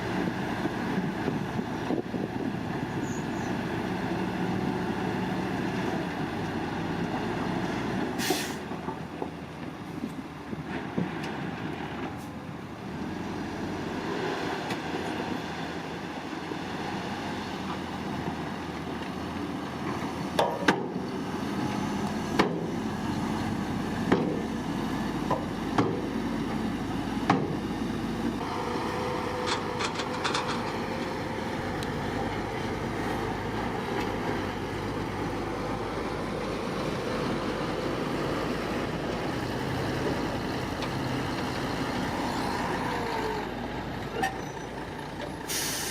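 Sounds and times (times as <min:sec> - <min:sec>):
heavy construction machinery running: 0:00.0 - 0:45.9.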